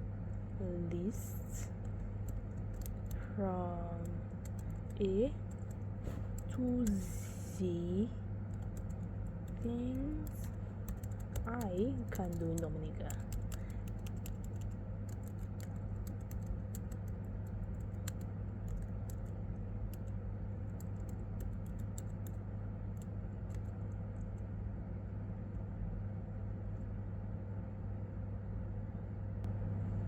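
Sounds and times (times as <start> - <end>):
steady low hum: 0.0 - 30.0
keyboard typing clicks: 1.8 - 3.3, 4.0 - 6.5, 8.5 - 19.3, 19.9 - 24.0.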